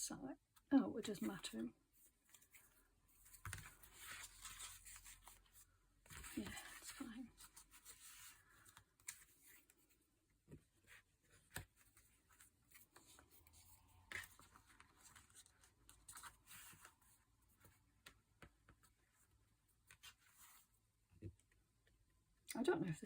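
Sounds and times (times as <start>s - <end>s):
paper rustling and scraping: 2.2s - 10.0s.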